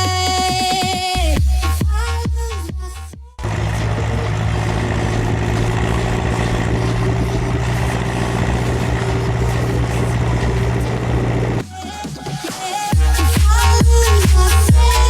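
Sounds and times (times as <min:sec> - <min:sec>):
tractor diesel engine running: 0:03.4 - 0:11.6.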